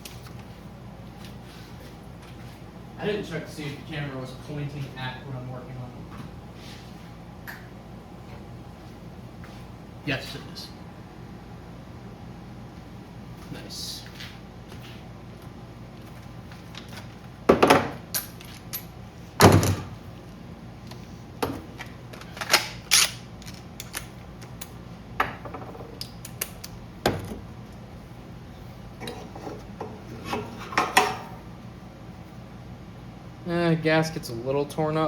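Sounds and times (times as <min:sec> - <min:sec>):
metal parts knocking and clinking: 0:17.6 - 0:18.9.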